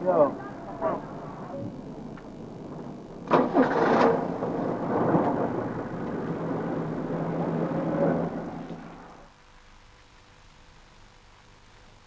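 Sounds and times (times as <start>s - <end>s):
car engine running: 0.1s - 9.3s.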